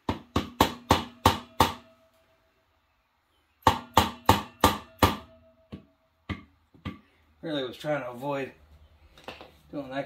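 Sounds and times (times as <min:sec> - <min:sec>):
hammer striking metal: 0:03.6 - 0:07.0.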